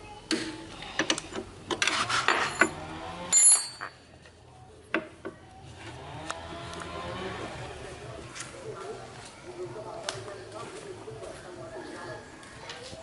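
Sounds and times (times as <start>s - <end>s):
metallic ringing clink: 3.3s - 4.0s.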